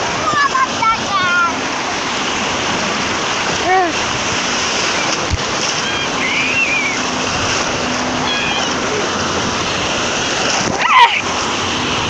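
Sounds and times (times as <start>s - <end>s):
sea surf washing in: 0.0s - 12.0s
faint high voices: 5.7s - 7.1s, 8.0s - 9.1s, 10.8s - 11.2s.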